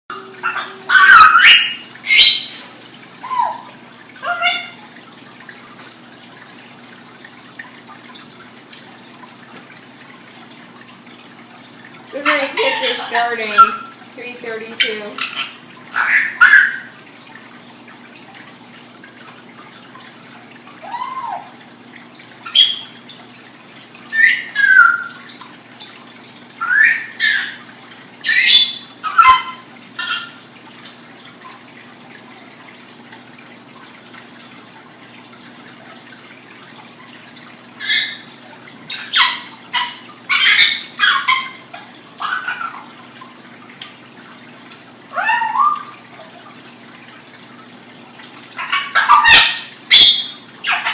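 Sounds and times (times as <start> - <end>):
pet animal calling: 0.1 - 2.6, 3.2 - 4.8, 38.9 - 43.0.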